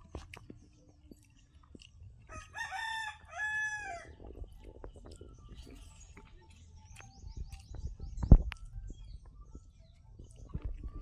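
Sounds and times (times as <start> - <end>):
rooster crowing: 2.3 - 4.1.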